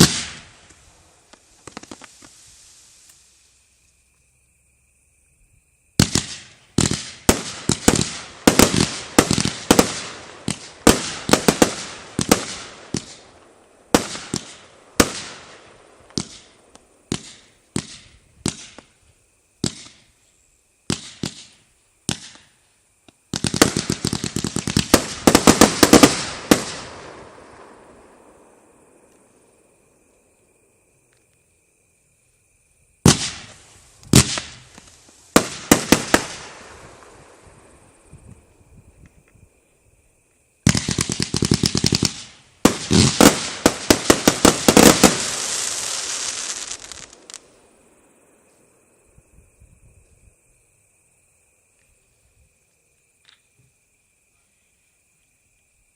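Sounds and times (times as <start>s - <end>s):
fireworks bangs: 0.0s - 3.1s, 6.0s - 19.0s, 19.6s - 20.1s, 20.9s - 22.6s, 23.3s - 29.3s, 33.0s - 38.5s, 40.6s - 47.8s.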